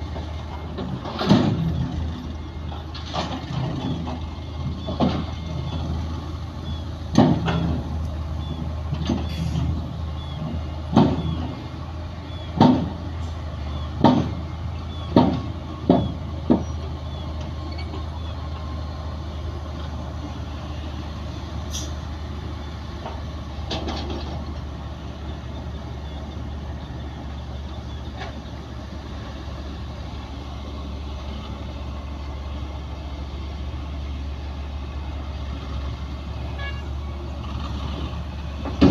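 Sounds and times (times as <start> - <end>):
heavy diesel machinery humming: 0.0 - 38.9
metallic clanks and knocks: 0.7 - 1.9, 7.1 - 7.9, 10.9 - 11.6, 12.6 - 13.0, 14.0 - 16.8, 23.0 - 24.7.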